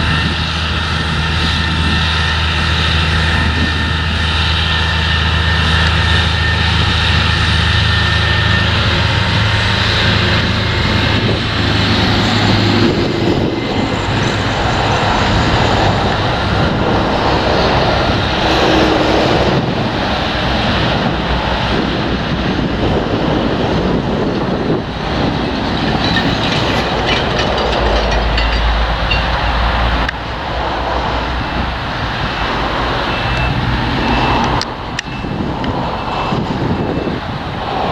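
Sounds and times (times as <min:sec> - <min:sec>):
machine rattling rumble: 0:25.6 - 0:30.2.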